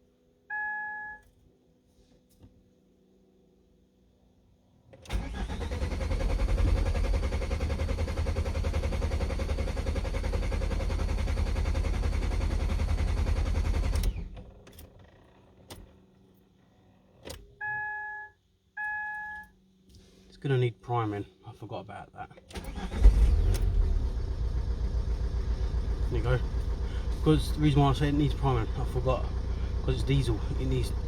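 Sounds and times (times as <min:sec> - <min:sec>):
short electronic beeps: 0:00.5 - 0:01.2, 0:17.6 - 0:19.5
diesel engine cranking: 0:05.1 - 0:15.6, 0:22.4 - 0:31.0.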